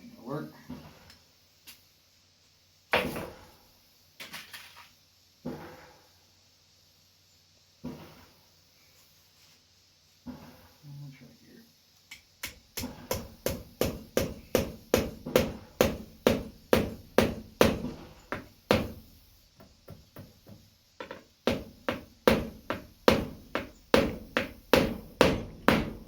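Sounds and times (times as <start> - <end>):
hammer driving nails: 12.1 - 26.0.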